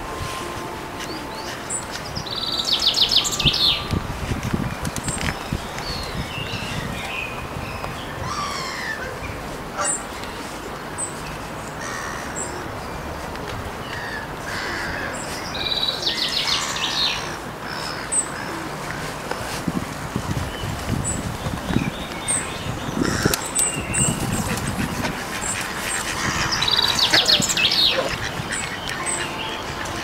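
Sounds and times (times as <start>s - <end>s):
low rushing background: 0.0s - 8.2s
bird trill: 0.0s - 9.0s, 21.8s - 30.0s
birds chirping and whistling: 0.0s - 10.0s, 20.3s - 30.0s.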